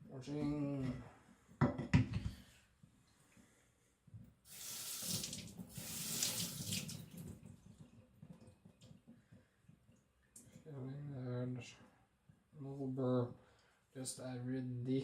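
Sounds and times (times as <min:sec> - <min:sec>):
water running from a tap: 0:04.5 - 0:07.5.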